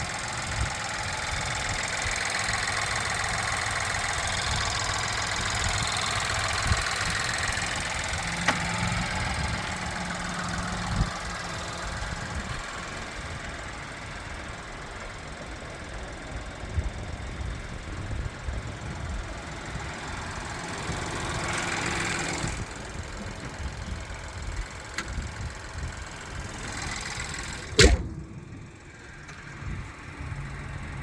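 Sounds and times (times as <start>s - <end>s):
car engine idling: 0.0s - 31.0s
sharp click: 27.7s - 28.2s.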